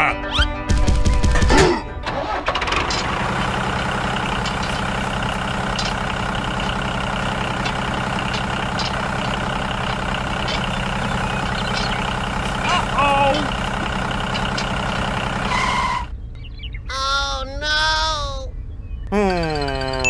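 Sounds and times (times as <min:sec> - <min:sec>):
small tractor engine drone: 0:02.0 - 0:16.1.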